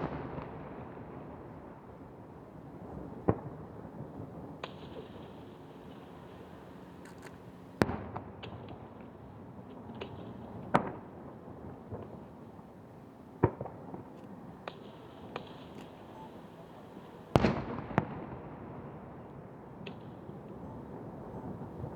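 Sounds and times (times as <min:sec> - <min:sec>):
small fireworks pops: 0:04.6 - 0:12.5, 0:13.4 - 0:18.5, 0:19.8 - 0:20.6.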